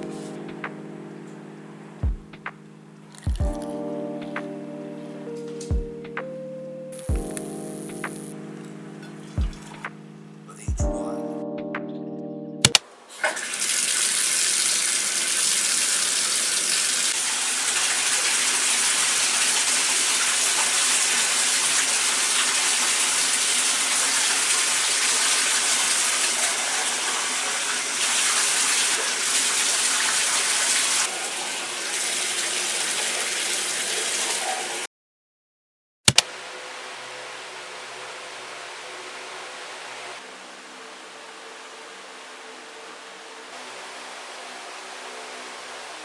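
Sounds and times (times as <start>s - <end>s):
water running: 0.0s - 11.1s, 12.7s - 34.9s
sharp click: 36.1s - 36.3s.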